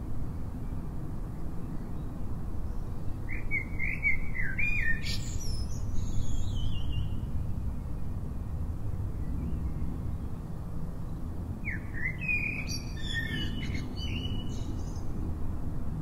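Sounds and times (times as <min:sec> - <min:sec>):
bird singing: 0:02.7 - 0:07.3, 0:11.6 - 0:15.1.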